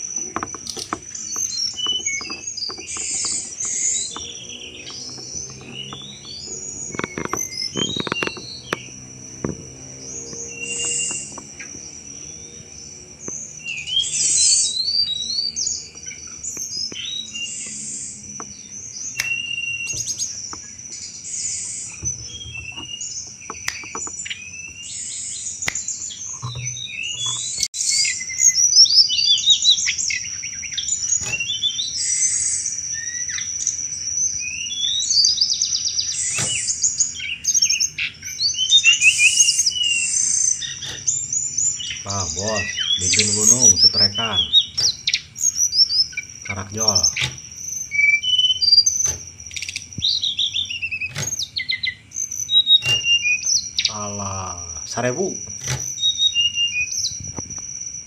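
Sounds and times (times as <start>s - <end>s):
bird chattering chirps and trills: 0.0s - 58.0s.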